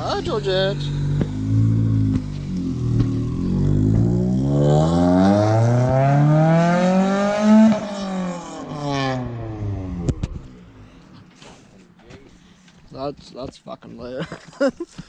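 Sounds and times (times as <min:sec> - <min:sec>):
car engine accelerating: 0:00.0 - 0:11.8.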